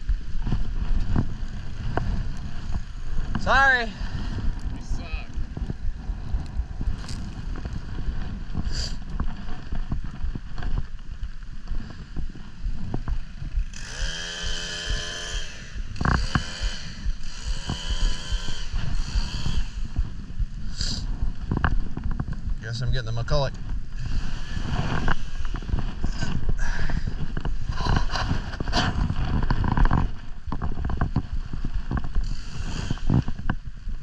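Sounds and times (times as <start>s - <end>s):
wind rumbling on microphone: 0.0s - 34.0s
chainsaw revving: 13.7s - 19.8s.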